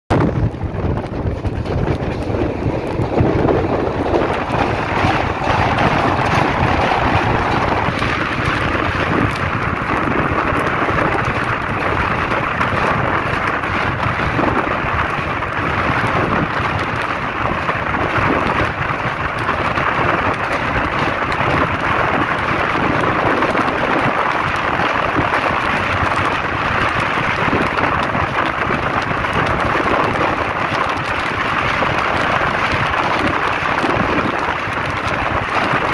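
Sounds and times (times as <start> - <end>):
wind on microphone: 0.1 - 35.9
train wheels on steel bridge: 0.3 - 35.9.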